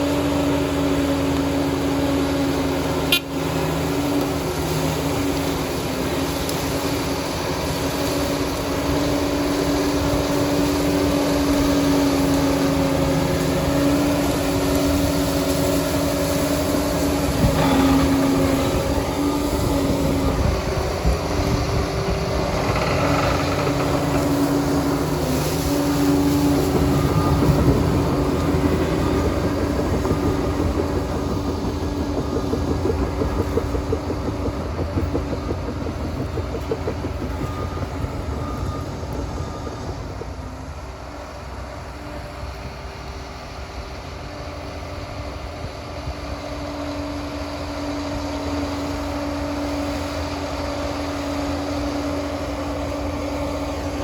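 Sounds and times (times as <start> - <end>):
dozer engine whine: 0.0 - 54.0
metallic track rattle: 17.1 - 40.8.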